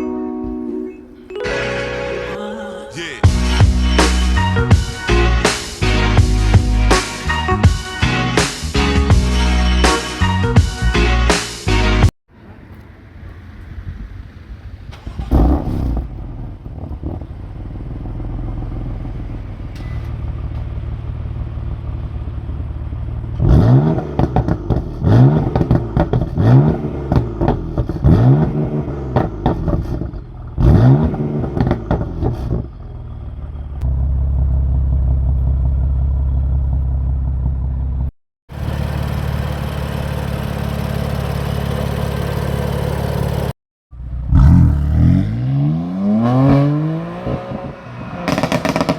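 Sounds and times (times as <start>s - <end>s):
car engine revving: 23.3s - 32.7s, 38.5s - 48.9s.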